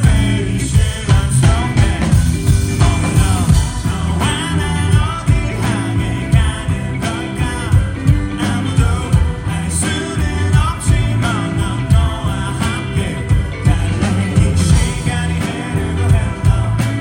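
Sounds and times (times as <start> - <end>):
lead vocal singing: 0.0 - 17.0
rock band playing live: 0.0 - 17.0.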